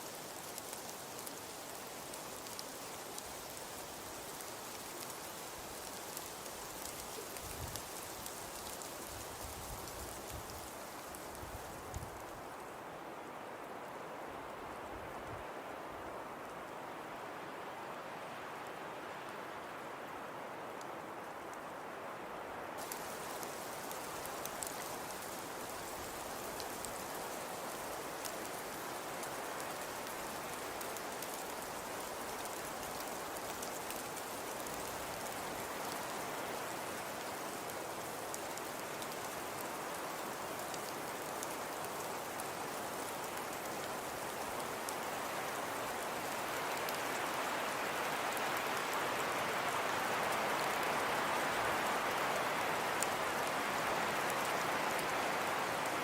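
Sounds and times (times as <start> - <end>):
fireplace crackling: 22.8 - 29.0.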